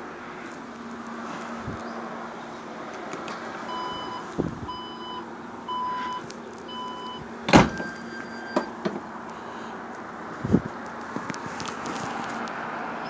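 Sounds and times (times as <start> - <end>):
electronic beeps: 3.7 - 7.2.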